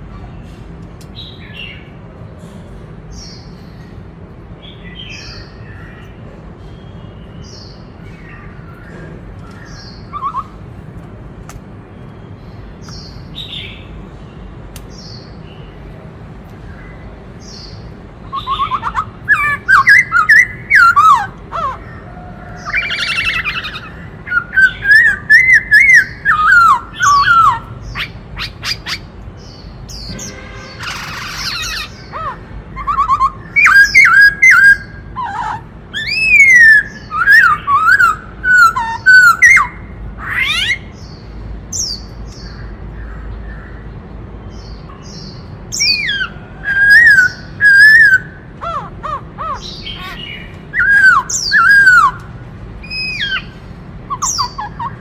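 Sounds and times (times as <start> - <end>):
bird singing whistled song: 9.4 - 10.6, 17.5 - 21.3, 22.6 - 40.8, 45.7 - 48.4, 49.5 - 52.2, 52.8 - 55.0.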